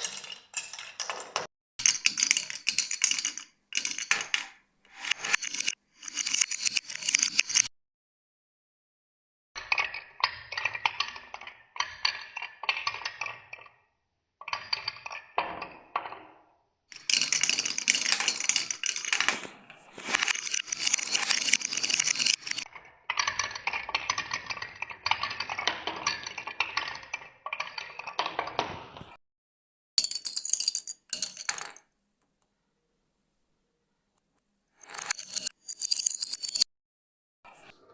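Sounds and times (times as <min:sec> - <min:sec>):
balls clattering down wooden track: 0:17.0 - 0:22.7, 0:30.0 - 0:31.8, 0:34.8 - 0:36.7.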